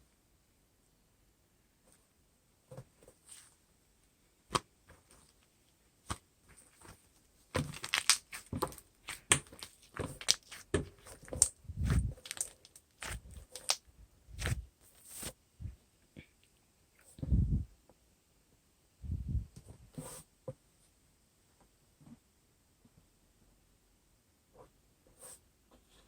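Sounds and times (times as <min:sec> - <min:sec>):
crackling and crunching: 0:04.5 - 0:15.3.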